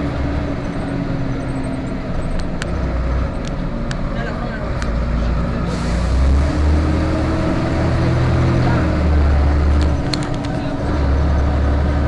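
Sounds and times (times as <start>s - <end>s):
bus engine drone: 0.0s - 12.0s
road noise: 0.0s - 12.0s
sharp clicks or rattles: 9.7s - 10.6s.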